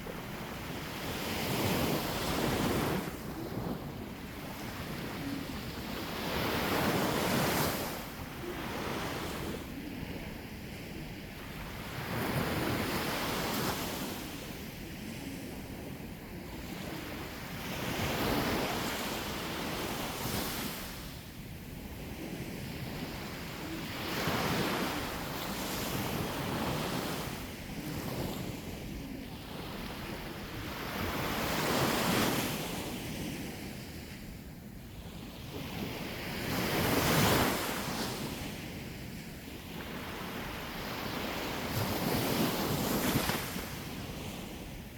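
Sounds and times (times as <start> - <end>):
wind on microphone: 0.0 - 44.9
sea waves breaking on shore: 39.6 - 44.9.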